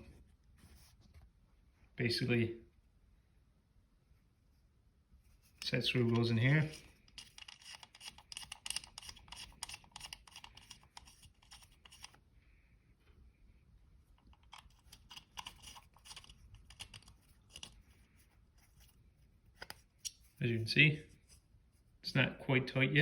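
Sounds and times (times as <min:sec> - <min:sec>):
small metal clicks and scrapes: 0:05.5 - 0:12.2, 0:14.2 - 0:19.0, 0:19.6 - 0:20.3.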